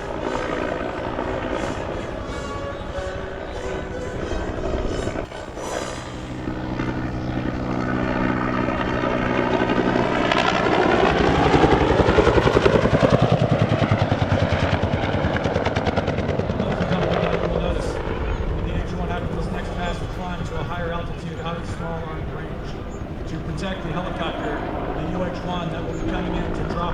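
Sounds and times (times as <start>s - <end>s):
helicopter rotor blade slap: 0.0s - 26.9s
helicopter turbine whine: 0.0s - 26.9s.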